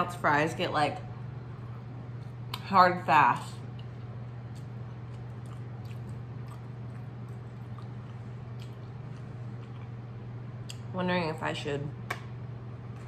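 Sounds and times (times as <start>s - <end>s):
steady low hum: 0.0s - 13.0s
chewing french fries: 3.6s - 10.9s.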